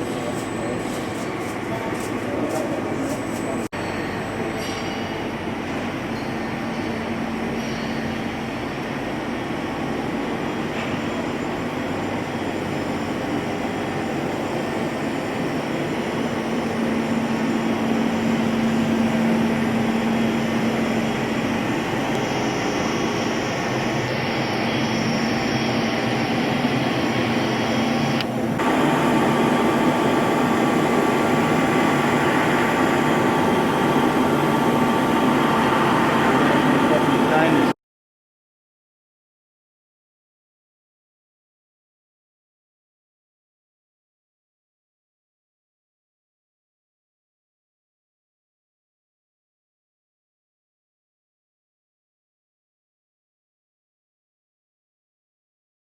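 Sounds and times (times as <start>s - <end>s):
lathe machine humming: 9.8s - 37.8s.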